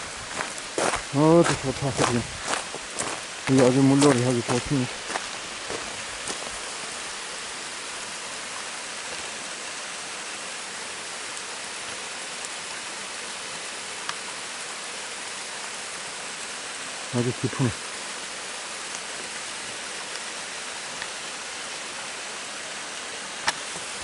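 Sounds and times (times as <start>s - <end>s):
stream water rushing: 0.0s - 24.0s.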